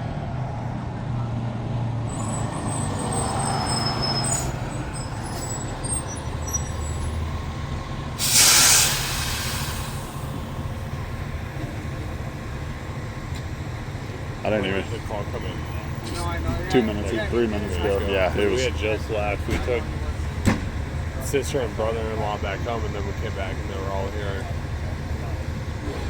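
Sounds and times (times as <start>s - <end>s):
heavy vehicle engine idling: 2.1s - 26.0s
air brake hiss: 8.2s - 10.4s.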